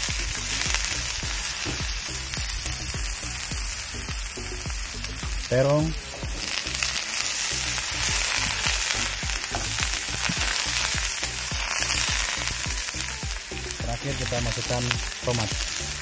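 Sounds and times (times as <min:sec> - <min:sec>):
vegetables sizzling in a frying pan: 0:00.0 - 0:16.0.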